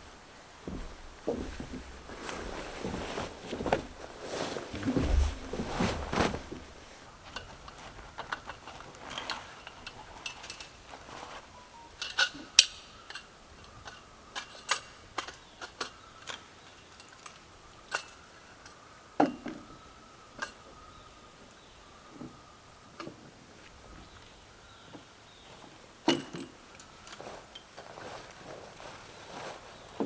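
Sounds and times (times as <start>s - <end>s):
camping gear rustling: 0.0s - 18.3s, 26.4s - 30.0s.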